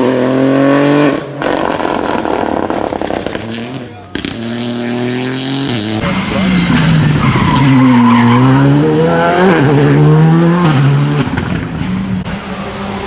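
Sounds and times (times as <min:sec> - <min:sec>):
rally car engine passing: 0:00.0 - 0:13.0.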